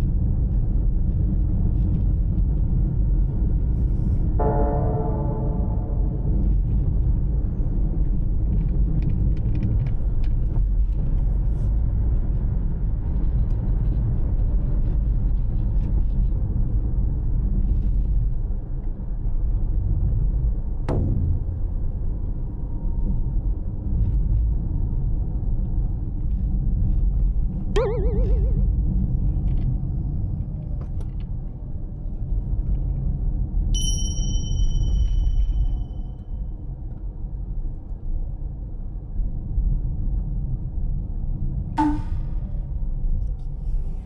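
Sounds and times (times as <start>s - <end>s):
short sharp sound: 27.8s - 28.8s.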